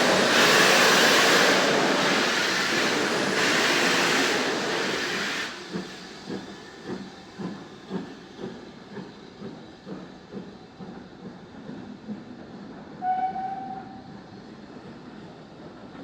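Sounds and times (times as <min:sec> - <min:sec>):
loud steam hiss: 0:00.0 - 0:12.0
steam locomotive soft beats: 0:00.0 - 0:16.0.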